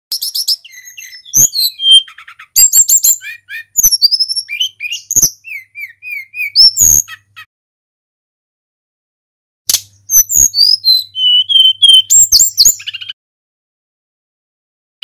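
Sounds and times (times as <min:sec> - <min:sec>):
flycatcher singing: 0:00.1 - 0:07.5, 0:10.1 - 0:13.2.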